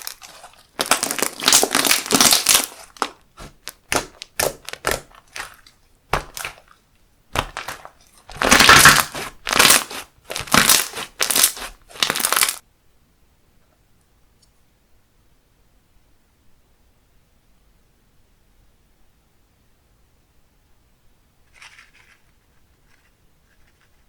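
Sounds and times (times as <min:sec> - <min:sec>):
slime squishing: 0:00.0 - 0:12.6.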